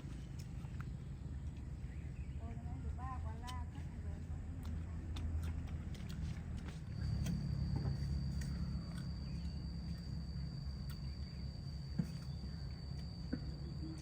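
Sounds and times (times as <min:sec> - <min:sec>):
insect trilling: 0:07.2 - 0:14.0.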